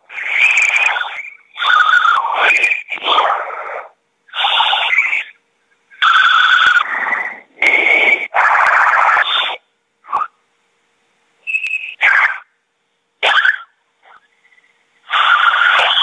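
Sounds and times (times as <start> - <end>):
harsh hissing bursts: 0.0 - 5.3, 15.0 - 16.0
whistle-like tone: 0.2 - 2.9, 4.3 - 10.3, 11.4 - 12.2, 13.2 - 16.0.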